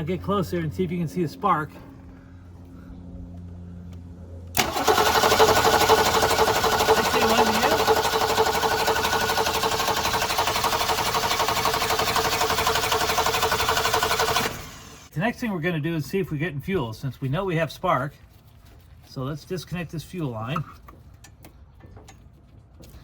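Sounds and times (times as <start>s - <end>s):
starter motor cranking engine: 4.5s - 15.1s.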